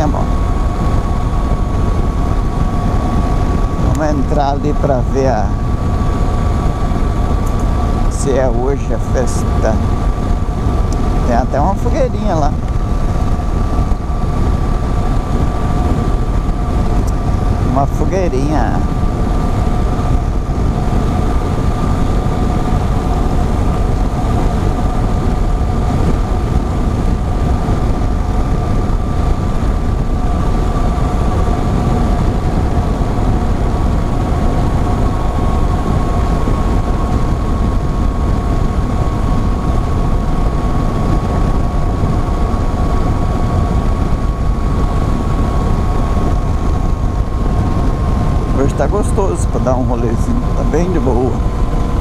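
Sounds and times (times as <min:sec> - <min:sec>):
motorcycle engine whine: 0:00.0 - 0:52.0
wind rushing over microphone: 0:00.0 - 0:52.0.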